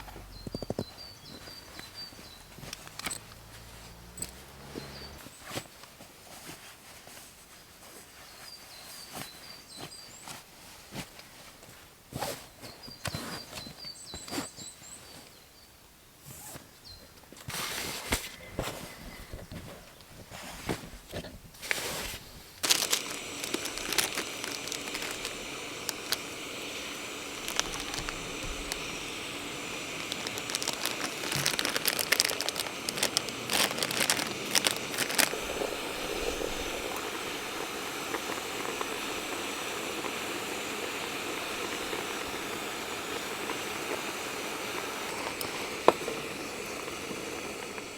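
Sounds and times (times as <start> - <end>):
gas stove burner hissing: 0.0 - 5.4, 21.6 - 47.9
gear and packaging rustling: 0.0 - 14.5, 17.4 - 47.9.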